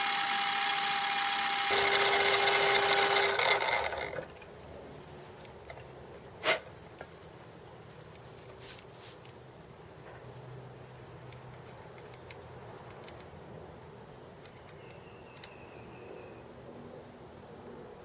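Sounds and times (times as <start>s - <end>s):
metal lathe whining: 0.0s - 4.2s.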